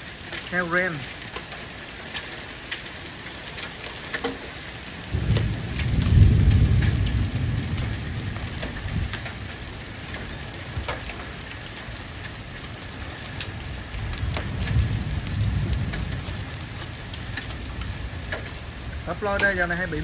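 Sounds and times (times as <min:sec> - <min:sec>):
hail and rain falling: 0:00.0 - 0:20.0
hailstones ticking: 0:00.0 - 0:20.0
thunder rumbling: 0:05.0 - 0:20.0.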